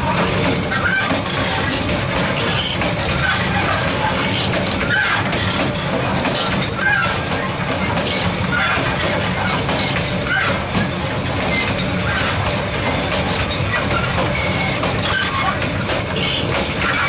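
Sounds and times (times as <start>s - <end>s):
train wheels rumbling on rail: 0.0s - 17.0s
short squeal: 13.7s - 15.6s.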